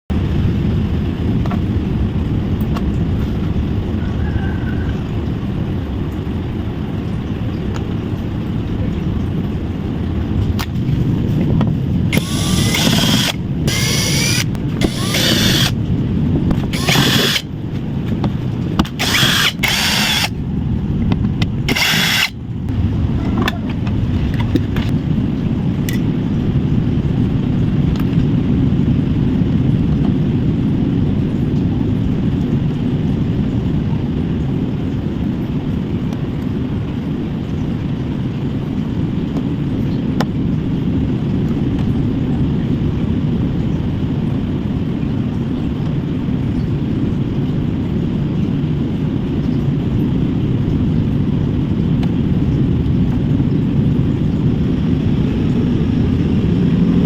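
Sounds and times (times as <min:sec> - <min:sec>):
steady low rumble: 0:00.1 - 0:57.0
power screwdriver bursts: 0:12.2 - 0:15.8, 0:16.7 - 0:17.5, 0:18.9 - 0:20.3, 0:21.7 - 0:22.4.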